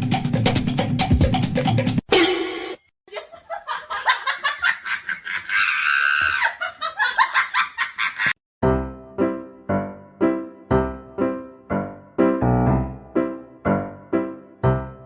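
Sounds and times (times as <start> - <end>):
music: 0.0 - 2.0, 8.6 - 15.0
person laughing hard: 3.1 - 8.4.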